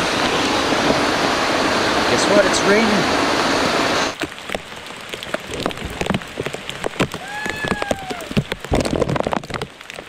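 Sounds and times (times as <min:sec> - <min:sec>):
rain falling: 0:00.0 - 0:10.0
raindrops tapping: 0:04.2 - 0:10.0.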